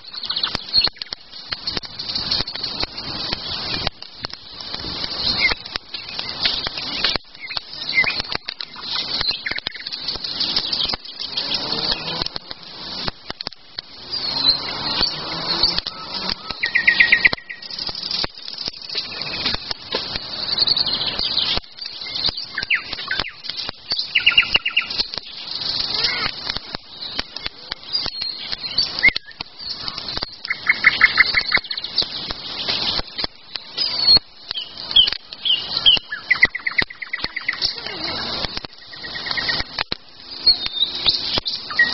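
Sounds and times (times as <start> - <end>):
small clicks and crackles: 0.0 - 41.9
songbirds singing: 0.0 - 41.9.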